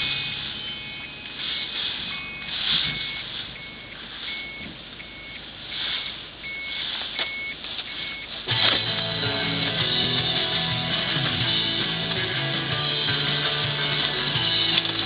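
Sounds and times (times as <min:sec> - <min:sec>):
electronic alarm beeping: 0:00.0 - 0:08.3.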